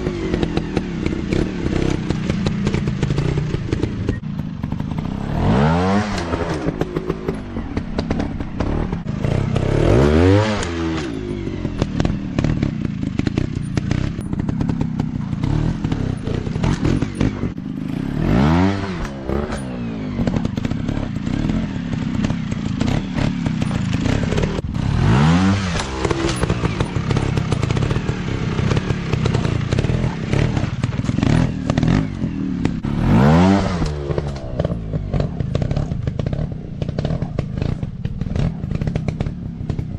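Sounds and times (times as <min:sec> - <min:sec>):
knocks and clatter: 0:00.0 - 0:18.2, 0:18.8 - 0:39.9
dirt bike engines revving: 0:00.0 - 0:39.9.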